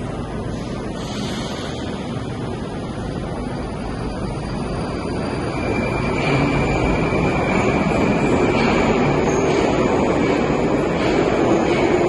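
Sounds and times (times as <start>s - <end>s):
metro train rumble: 0.0s - 12.0s.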